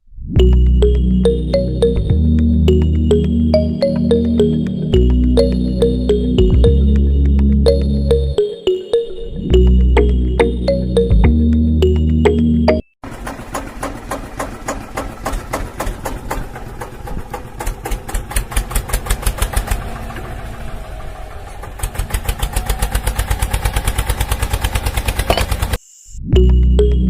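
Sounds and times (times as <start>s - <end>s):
small diesel engine chugging: 13.0s - 25.8s.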